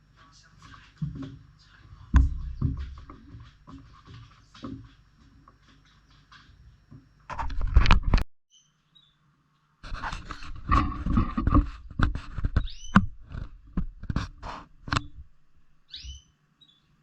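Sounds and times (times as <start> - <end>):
birds scratching and rustling: 0.1 - 8.2, 9.8 - 16.1
bird chirps gliding downward: 15.9 - 16.9.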